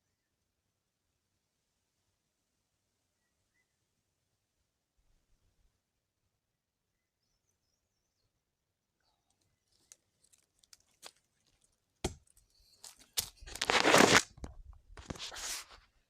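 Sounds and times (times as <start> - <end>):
loud rustling tearing noise: 9.8 - 11.7, 12.7 - 14.4, 15.0 - 15.8.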